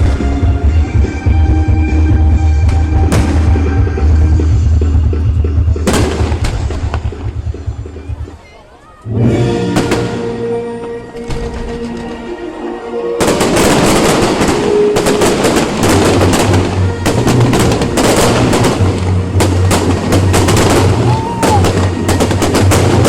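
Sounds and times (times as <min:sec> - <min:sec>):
fireworks crackling bangs: 0:02.5 - 0:04.5, 0:05.7 - 0:07.8, 0:09.8 - 0:10.3, 0:11.2 - 0:12.3, 0:13.2 - 0:23.0.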